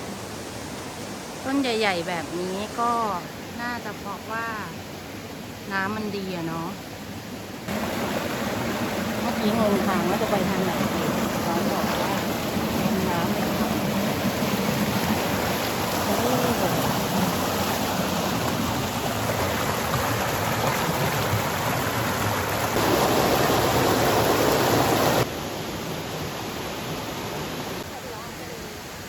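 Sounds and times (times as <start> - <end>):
stream water rushing: 0.0 - 29.0.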